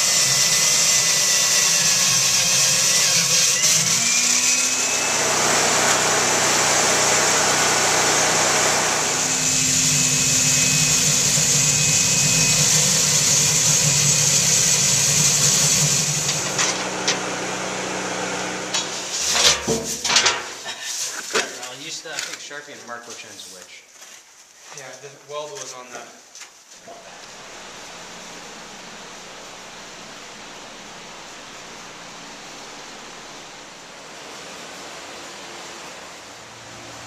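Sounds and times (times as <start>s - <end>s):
machine humming and hissing: 0.0s - 20.5s, 26.9s - 37.0s
sharp metallic knocks: 18.7s - 20.6s.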